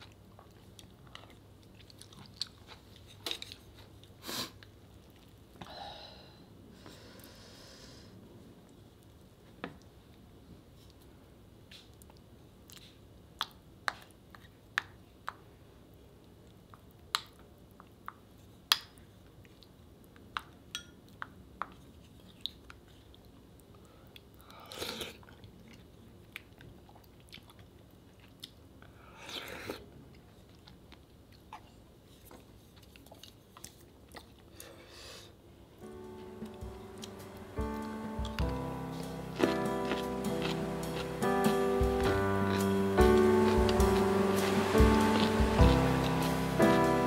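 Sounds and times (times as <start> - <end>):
chewing: 0.0 - 5.6, 11.7 - 14.6, 21.7 - 34.8, 36.4 - 46.8.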